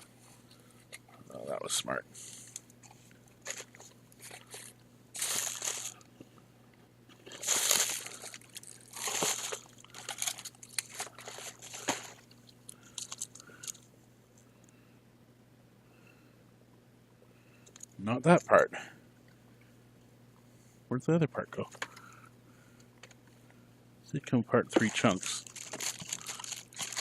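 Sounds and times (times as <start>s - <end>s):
plastic crinkling and rustling: 3.4s - 6.1s, 7.1s - 13.8s, 24.7s - 27.0s.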